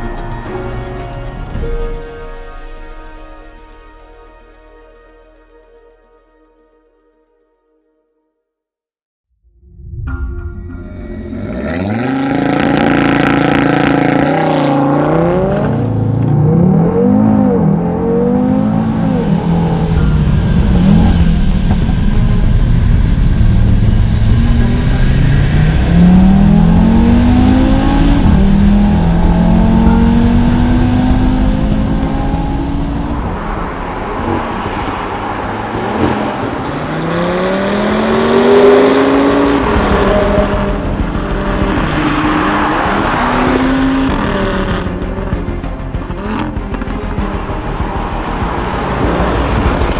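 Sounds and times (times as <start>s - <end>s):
car engine accelerating hard: 11.2s - 49.9s.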